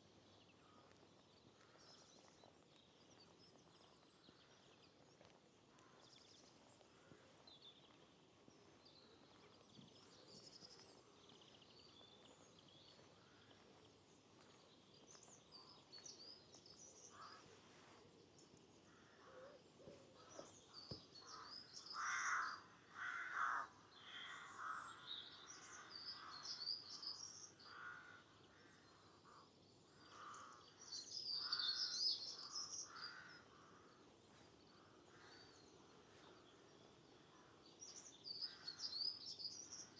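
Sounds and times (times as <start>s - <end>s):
songbirds twittering: 0.2s - 39.9s
crows cawing: 21.4s - 24.8s, 27.7s - 28.2s, 32.9s - 34.0s.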